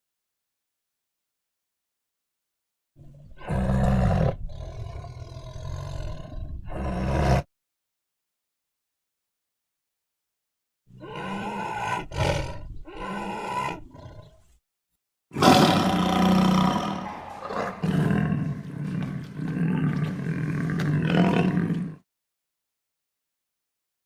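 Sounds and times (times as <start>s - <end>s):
tiger growling: 3.0s - 7.5s, 10.9s - 14.4s, 15.4s - 22.0s
tiger roaring: 3.0s - 7.5s, 10.9s - 14.4s, 15.4s - 22.0s.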